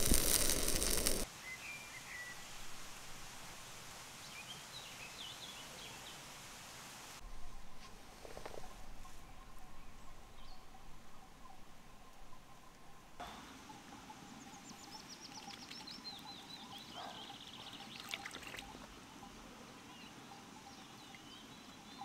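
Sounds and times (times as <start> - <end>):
running water hiss: 0.0 - 7.2, 13.2 - 22.0
songbird singing with trill: 1.4 - 2.5, 9.2 - 22.0.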